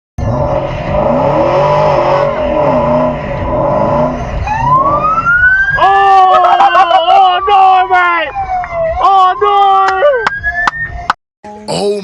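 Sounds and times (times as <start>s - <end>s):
car engine revving: 0.2s - 9.0s
siren wailing: 0.2s - 11.1s.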